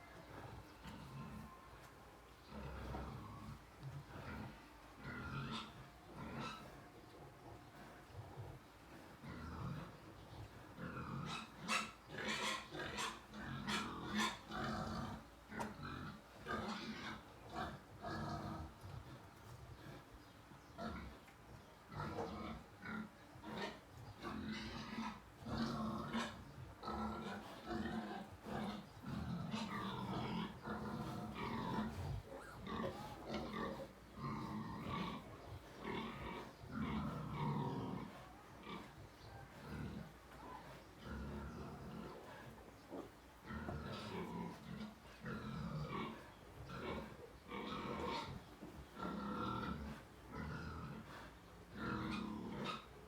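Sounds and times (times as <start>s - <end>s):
piglets squealing and grunting: 4.2s - 6.8s, 10.8s - 18.8s, 21.9s - 42.3s
sow low grunting: 24.2s - 52.9s.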